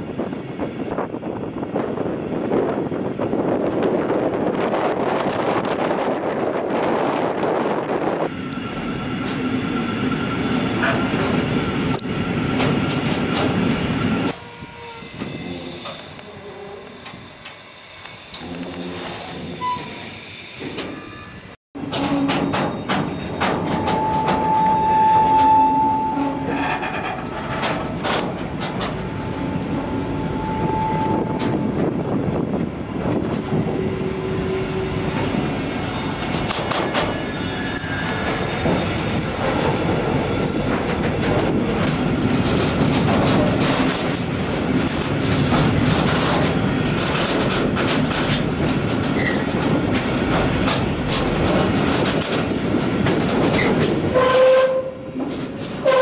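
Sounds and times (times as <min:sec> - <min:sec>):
wheel squeals: 0:18.3 - 0:27.9, 0:29.0 - 0:31.6, 0:35.8 - 0:38.9, 0:49.1 - 0:49.6
track clicks and clatter: 0:21.8 - 0:24.7, 0:26.2 - 0:29.8, 0:36.2 - 0:37.2, 0:37.8 - 0:54.1
freight wagon wheels rumbling: 0:21.8 - 0:56.0.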